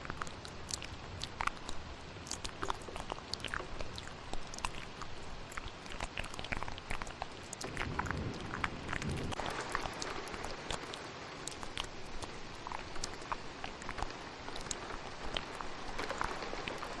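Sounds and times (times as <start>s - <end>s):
wet mouth clicks and smacks: 0.0s - 17.0s
thunderstorm and rain: 7.6s - 17.0s.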